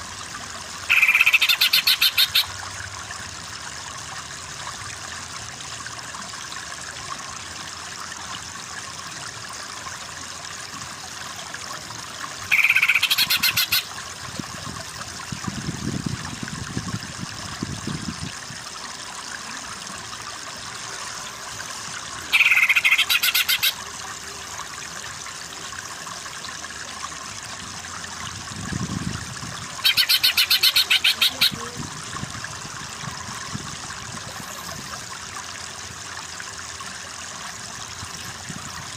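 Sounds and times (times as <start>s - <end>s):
flowing water rushing: 0.0s - 38.9s
bird trilled chatter: 0.9s - 2.5s, 12.5s - 13.8s, 22.3s - 23.8s, 29.8s - 31.6s.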